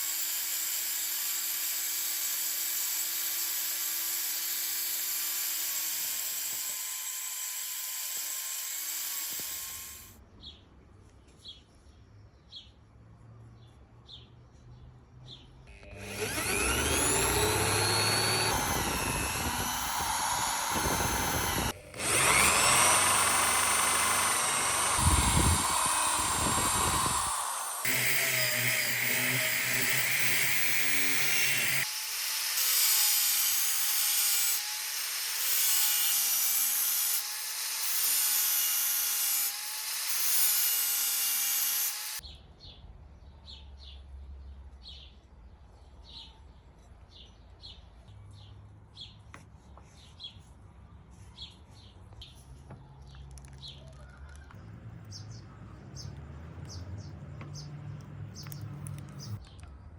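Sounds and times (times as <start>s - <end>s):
power tool running: 0.0s - 10.2s, 15.7s - 42.2s.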